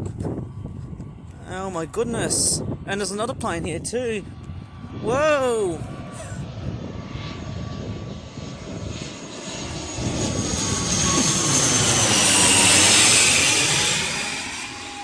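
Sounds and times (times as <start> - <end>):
airliner engine noise overhead: 0.0 - 15.0
high whine falling in pitch: 9.4 - 15.0.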